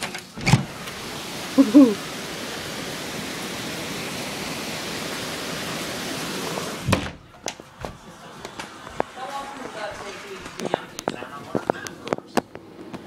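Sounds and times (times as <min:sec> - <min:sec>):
rain falling: 0:00.0 - 0:07.0, 0:08.0 - 0:12.2
brief two-note voice-like sound: 0:01.6 - 0:02.0.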